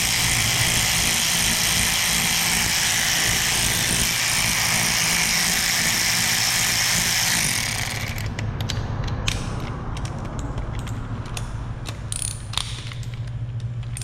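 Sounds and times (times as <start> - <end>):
socket ratchet clicking: 7.6 - 14.0.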